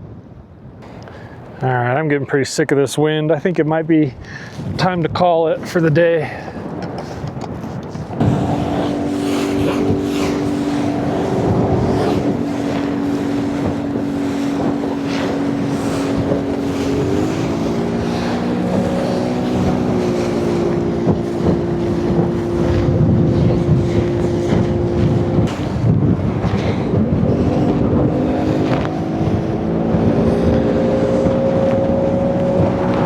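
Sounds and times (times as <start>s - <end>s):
wind buffeting microphone: 0.0s - 33.0s
motorboat engine running: 6.8s - 33.0s.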